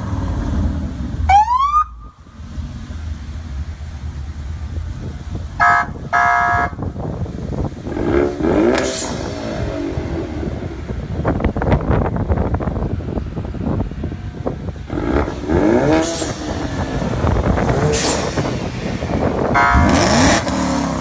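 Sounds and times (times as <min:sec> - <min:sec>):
exhaust crackling: 0:01.9 - 0:21.0
car horn blasts: 0:05.6 - 0:06.9, 0:19.3 - 0:20.4
engine revving: 0:07.8 - 0:10.9, 0:14.8 - 0:21.0.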